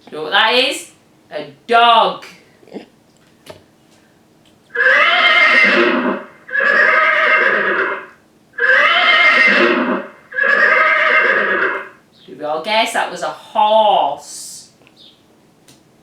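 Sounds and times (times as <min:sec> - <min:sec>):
horse whinnying: 0:04.7 - 0:12.0.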